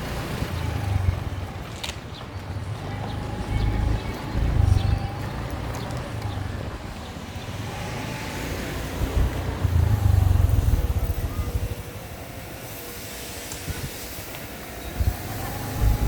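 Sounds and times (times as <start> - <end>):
motorbike engine running: 7.4 - 13.0, 14.7 - 16.0
wind rumble on microphone: 9.0 - 12.3, 13.5 - 16.0.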